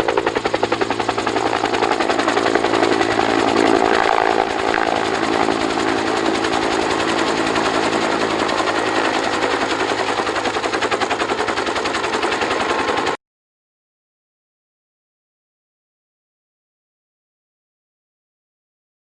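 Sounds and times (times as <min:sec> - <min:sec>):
helicopter engine hum: 0:00.0 - 0:13.2
helicopter rotor beating: 0:00.0 - 0:13.2.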